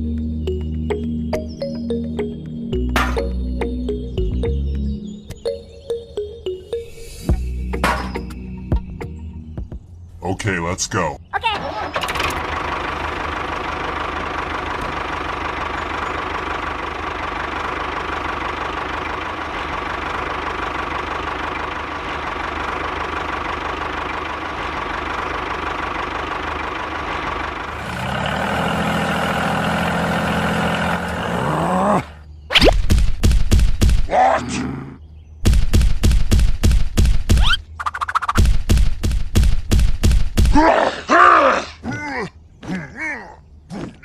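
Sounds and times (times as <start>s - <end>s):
tractor engine running: 11.4s - 31.8s, 35.4s - 40.6s.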